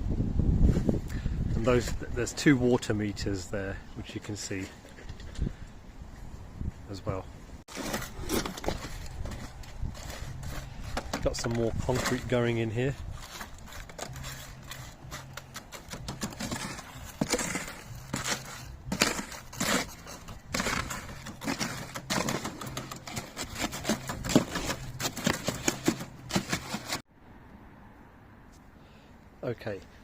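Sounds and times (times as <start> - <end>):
hand tools scraping wet concrete: 7.7 - 27.0.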